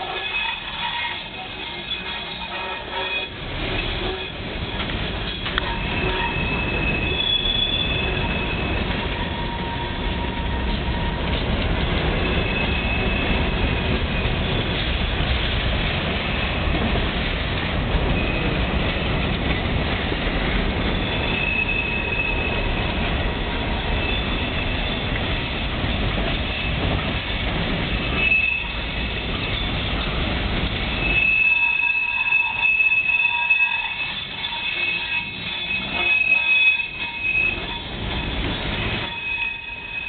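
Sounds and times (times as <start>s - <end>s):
high-pitched wheel squeal: 0.0s - 11.4s, 12.1s - 14.8s, 20.8s - 25.2s, 27.9s - 29.9s, 30.8s - 40.0s
steel wheels rumbling on rail: 0.0s - 40.0s.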